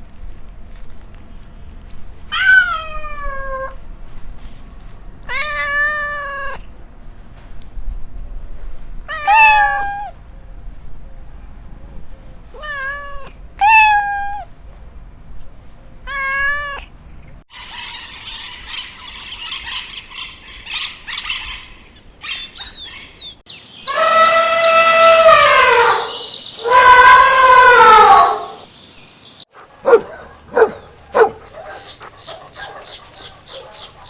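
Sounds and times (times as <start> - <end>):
cat meowing: 2.3 - 3.8, 9.1 - 10.2, 12.6 - 14.6, 24.0 - 28.6, 29.9 - 34.0.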